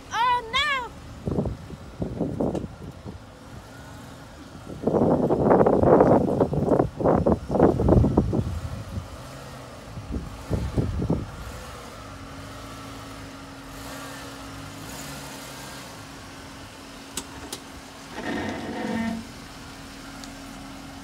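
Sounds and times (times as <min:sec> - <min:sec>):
car engine low hum: 0:00.9 - 0:21.0
low bumps: 0:17.2 - 0:19.6.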